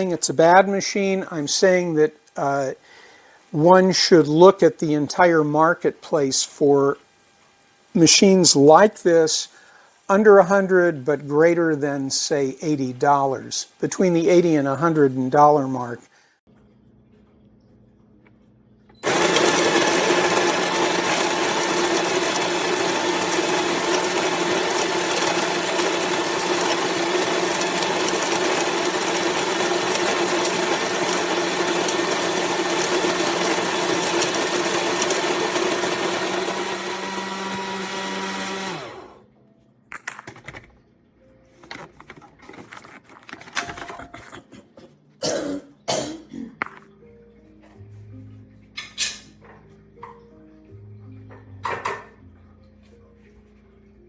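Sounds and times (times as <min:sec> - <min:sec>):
electric coffee grinder running: 0:19.0 - 0:39.2.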